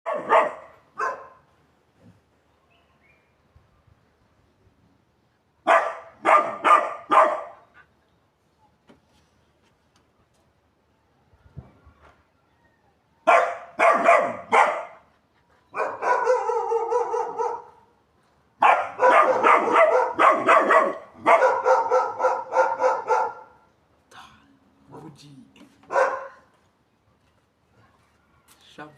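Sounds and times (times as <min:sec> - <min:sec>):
puppy barking: 0:00.1 - 0:01.4, 0:05.7 - 0:07.7, 0:13.3 - 0:15.0, 0:15.8 - 0:17.8, 0:18.6 - 0:23.6, 0:25.9 - 0:26.4.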